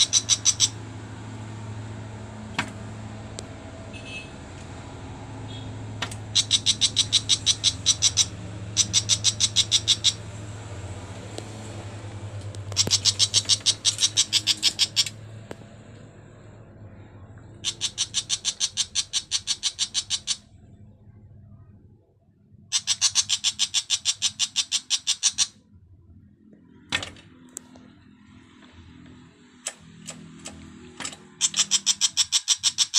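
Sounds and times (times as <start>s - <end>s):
bird harsh rapid chattering: 0.0s - 0.8s, 6.0s - 10.3s, 12.6s - 15.2s, 17.6s - 20.5s, 22.7s - 25.6s, 31.3s - 32.9s.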